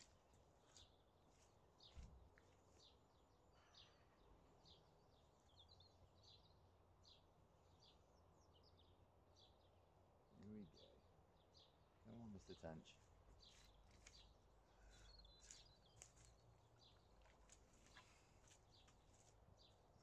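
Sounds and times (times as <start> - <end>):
faint birdsong chirps: 0.0 - 20.0.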